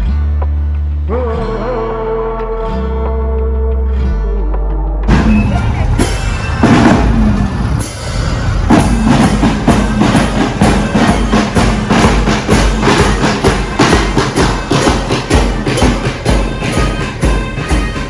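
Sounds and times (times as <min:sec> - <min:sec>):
band instruments: 0:05.0 - 0:18.0
drums playing marching beat: 0:05.1 - 0:18.0.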